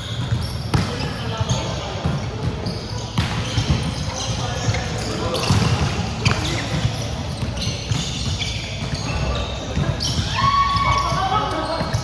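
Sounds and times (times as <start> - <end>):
shoe squeaks on court: 0.0 - 12.0
volleyball strikes and thuds: 0.2 - 1.1, 3.2 - 4.6, 5.2 - 10.3.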